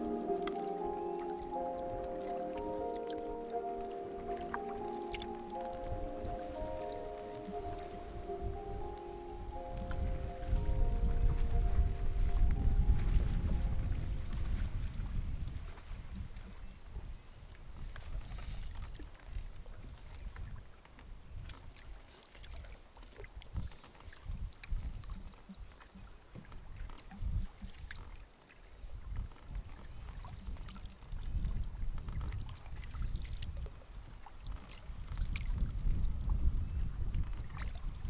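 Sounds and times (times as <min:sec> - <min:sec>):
wind rumble on microphone: 0:05.6 - 0:22.6, 0:23.3 - 0:28.0, 0:28.8 - 0:38.0
canoe paddle splashing in water: 0:20.0 - 0:36.1.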